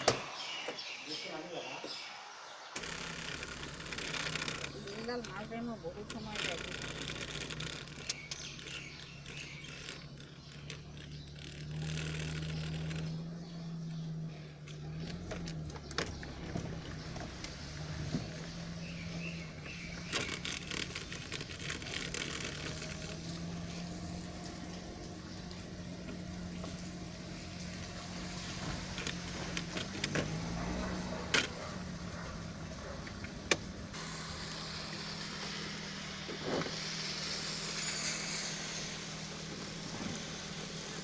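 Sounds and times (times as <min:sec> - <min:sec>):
clicks: 0:02.8 - 0:14.0
small car engine idling: 0:02.8 - 0:41.0
hiss: 0:34.0 - 0:41.0.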